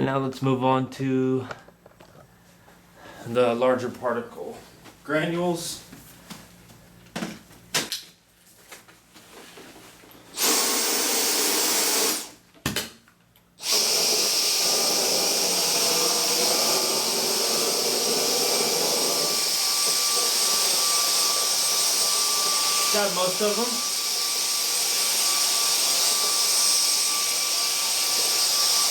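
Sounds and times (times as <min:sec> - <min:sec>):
vacuum cleaner motor running: 0:10.4 - 0:12.3, 0:13.6 - 0:28.9.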